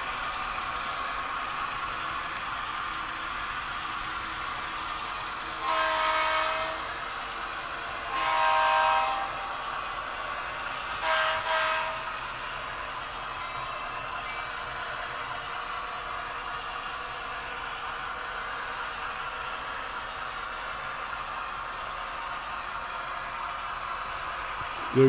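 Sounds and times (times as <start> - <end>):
steady running hiss: 0.0 - 25.0
locomotive horn blasts: 5.6 - 6.9, 8.1 - 9.6, 11.0 - 12.2.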